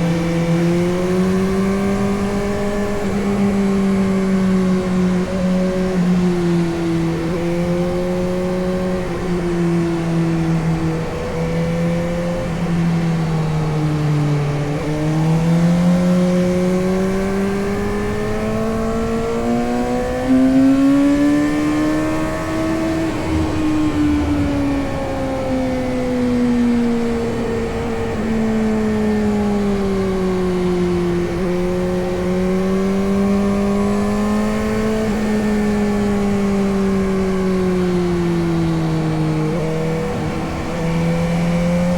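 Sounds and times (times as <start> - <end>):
motorcycle engine revving: 16.0 - 41.9.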